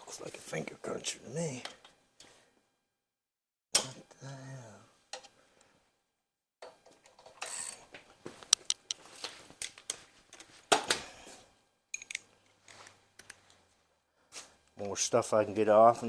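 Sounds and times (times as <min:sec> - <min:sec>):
metal tools clicking on engine parts: 0:12.0 - 0:12.3.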